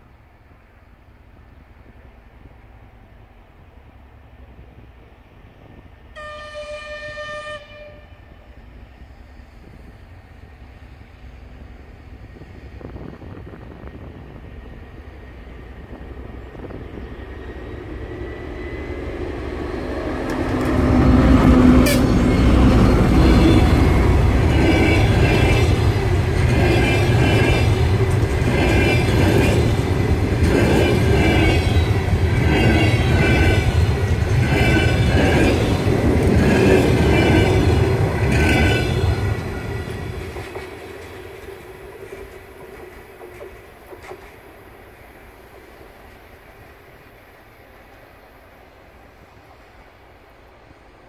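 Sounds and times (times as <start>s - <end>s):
diesel locomotive engine rumbling: 0.0s - 51.0s
clickety-clack of train wheels: 15.4s - 47.2s.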